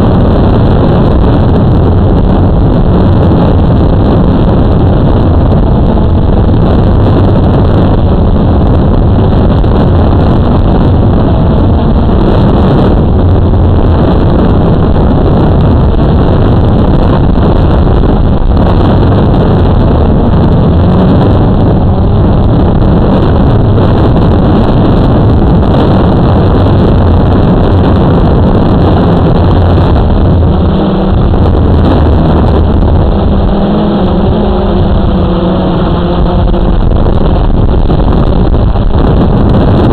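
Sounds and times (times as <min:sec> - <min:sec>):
wind on microphone: 0:00.0 - 0:39.9
quadcopter motors humming: 0:28.2 - 0:37.4.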